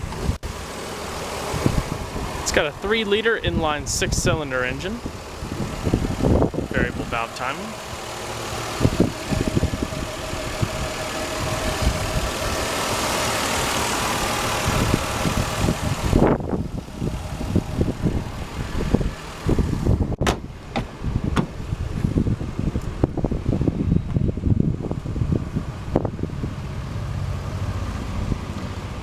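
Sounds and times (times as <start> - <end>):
car engine idling: 0.0 - 29.0
uneven low rumbling: 0.0 - 29.0
sharp knock: 20.2 - 21.5.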